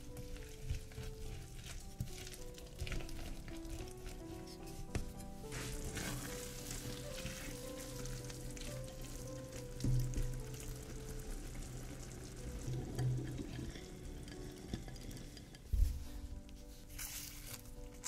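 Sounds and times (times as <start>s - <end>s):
spatula stirring and scraping: 0.0s - 10.4s
background music: 0.0s - 18.0s.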